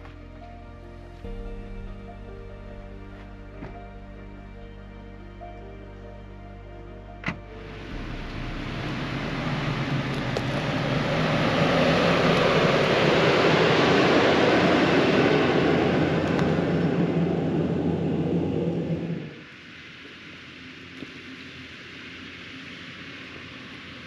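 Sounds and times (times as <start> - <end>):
low hum: 0.0 - 23.9
passing engine rush: 7.5 - 19.5.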